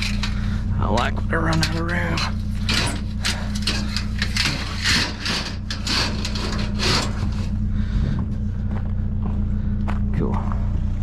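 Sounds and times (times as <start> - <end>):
scrap scraping and knocking: 0.0 - 8.3
steady low hum: 0.0 - 11.0.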